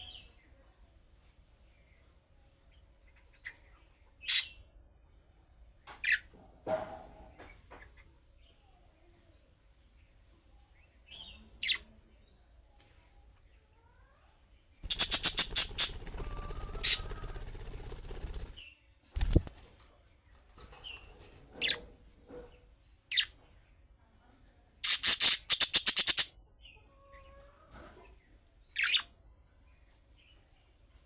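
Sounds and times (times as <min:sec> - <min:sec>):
budgerigar chirps: 0:14.8 - 0:17.2, 0:24.8 - 0:26.3
rapid wing-flapping: 0:14.8 - 0:18.6, 0:19.2 - 0:19.8.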